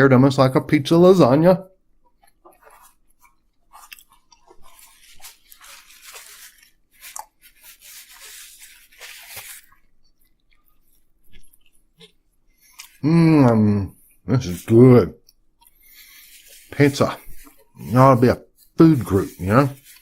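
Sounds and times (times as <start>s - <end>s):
person chewing crunchy food: 2.0s - 14.2s.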